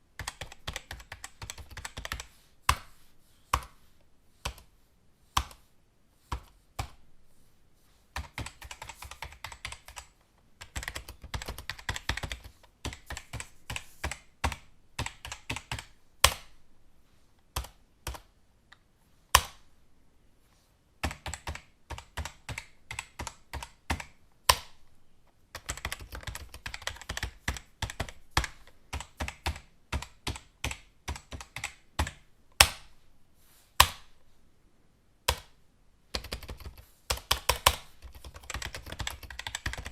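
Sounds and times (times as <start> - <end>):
keyboard typing: 0.2 - 2.9, 8.2 - 16.6, 21.0 - 24.8, 25.5 - 32.9, 35.3 - 39.9.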